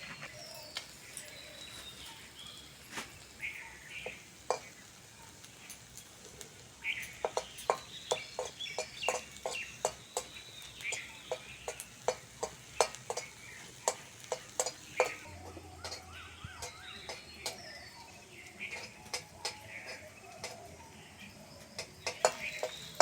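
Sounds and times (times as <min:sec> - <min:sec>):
birds chirping: 0:00.0 - 0:23.0
chillies frying in oil: 0:00.0 - 0:23.0
metal spatula scraping frying pan: 0:10.9 - 0:17.8, 0:18.6 - 0:20.8.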